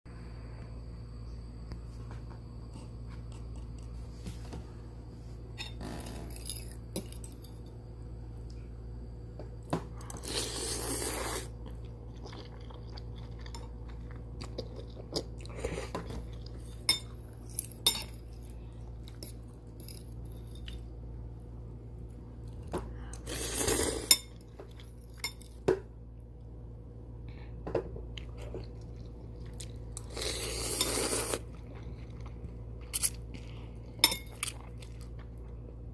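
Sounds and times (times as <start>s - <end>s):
steady low hum: 0.1s - 35.9s
chewing: 10.1s - 17.2s.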